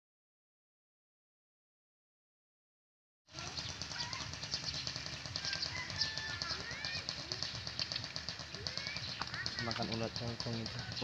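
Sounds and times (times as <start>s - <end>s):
dense fast ticking: 3.3s - 11.0s
birds chirping whistled notes: 3.4s - 8.0s.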